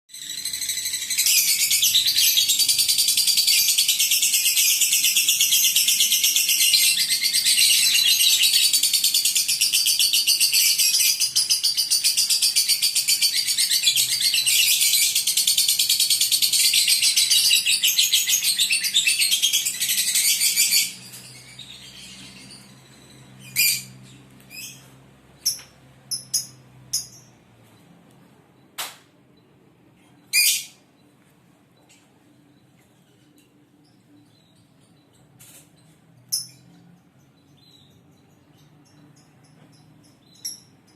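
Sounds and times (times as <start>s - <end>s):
bird chirps: 0.1s - 31.2s, 31.8s - 40.9s
lovebird chattering trill: 25.4s - 27.4s.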